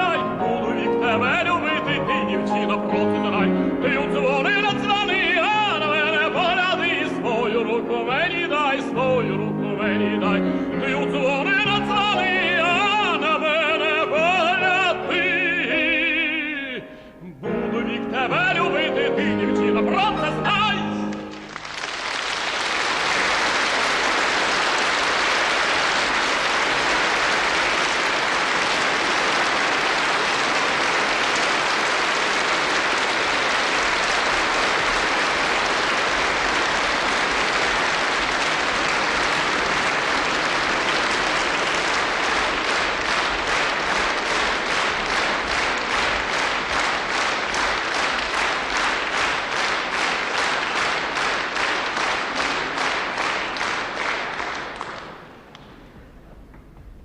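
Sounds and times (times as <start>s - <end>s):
audience applauding: 0.0s - 7.5s, 20.2s - 56.2s
rhythmic unison clapping: 21.0s - 56.6s.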